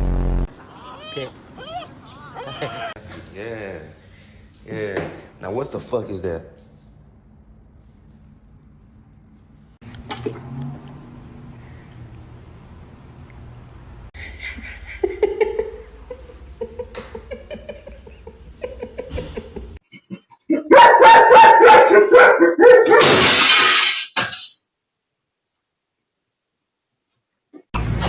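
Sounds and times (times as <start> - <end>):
harsh distorted dog noise: 0.0 - 3.0
dog whining: 0.5 - 3.0.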